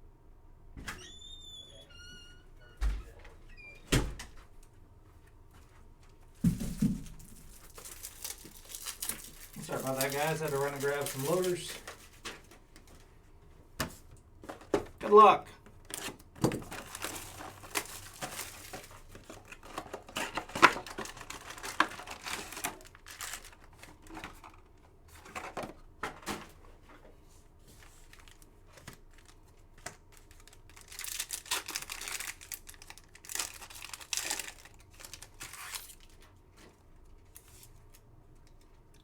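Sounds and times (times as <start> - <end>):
foil wrappers crinkling and tearing: 6.6 - 12.5, 15.2 - 24.7, 27.8 - 36.4.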